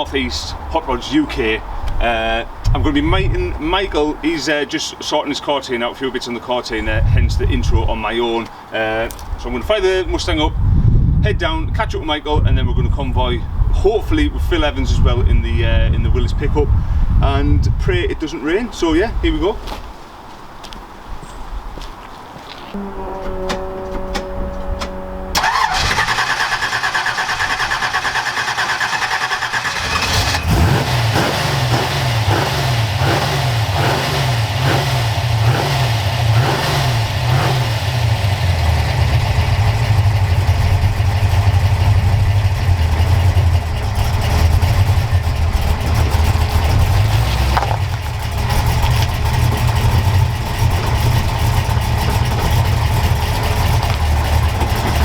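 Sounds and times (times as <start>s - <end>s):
car engine cranking: 22.8s - 55.0s
car engine revving and idling: 22.8s - 55.0s.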